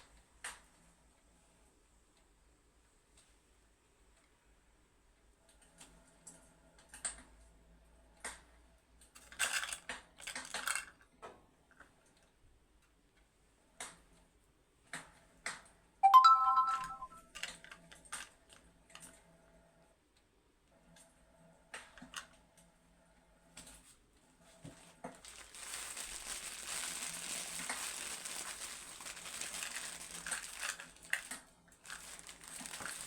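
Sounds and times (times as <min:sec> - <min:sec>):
ringing tone: 0:16.0 - 0:17.2
short rustling bursts: 0:25.2 - 0:33.0.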